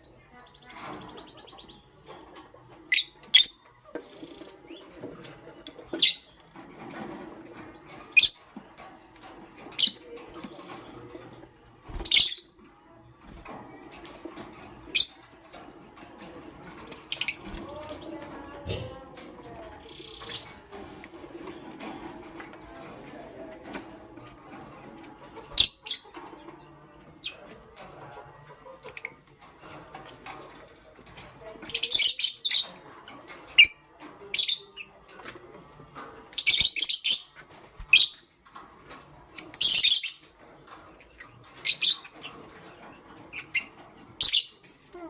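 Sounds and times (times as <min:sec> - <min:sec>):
lovebirds chirping: 0:00.0 - 0:07.0, 0:07.6 - 0:21.8, 0:22.7 - 0:28.0, 0:31.4 - 0:32.9, 0:36.3 - 0:38.4, 0:39.3 - 0:45.0.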